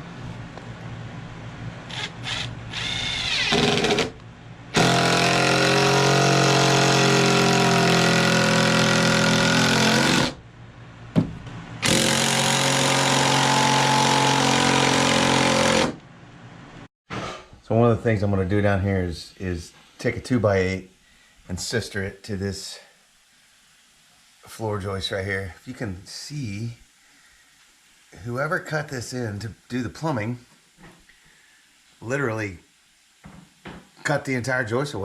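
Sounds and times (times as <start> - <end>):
electric drill with hole saw cutting: 1.9 - 4.2, 4.8 - 10.4, 11.8 - 16.0.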